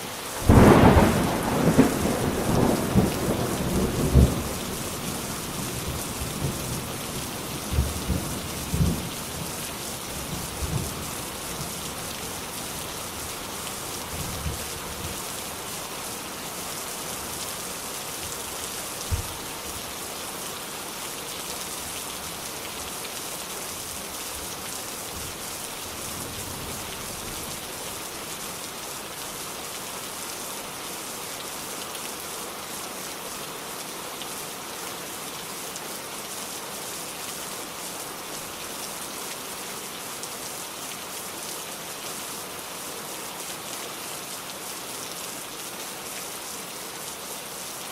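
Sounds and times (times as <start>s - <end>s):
steady rain falling: 0.0s - 47.9s
thunder rumbling: 0.5s - 4.9s.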